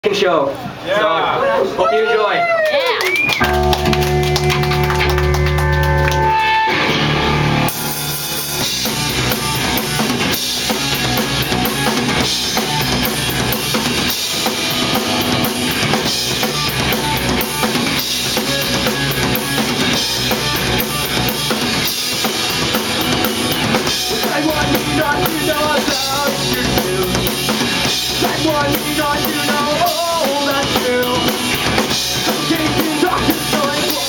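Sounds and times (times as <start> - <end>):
rock band playing: 3.3 - 34.0
guitar chord ringing: 3.4 - 8.8.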